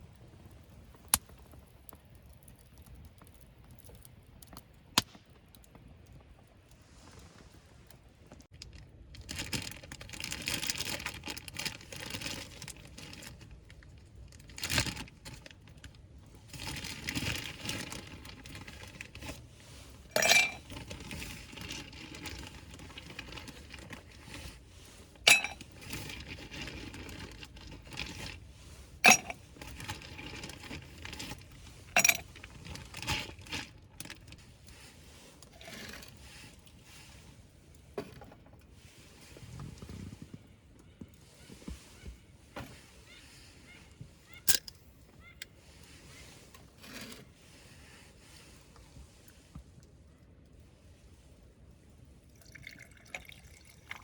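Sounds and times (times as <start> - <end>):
rustling and crinkling packaging: 5.8 - 50.0
hard items clinking together: 20.1 - 21.6, 25.3 - 28.3, 29.0 - 31.4, 32.0 - 33.6.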